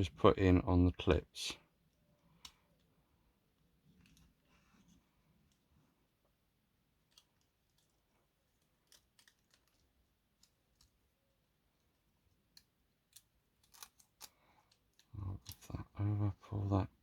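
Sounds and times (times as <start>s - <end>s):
small parts clicking and tapping: 6.9s - 15.8s.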